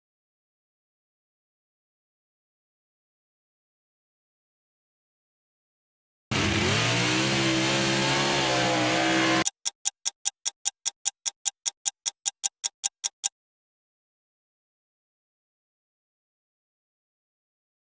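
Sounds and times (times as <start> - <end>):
short sharp ticks: 9.4 - 13.3.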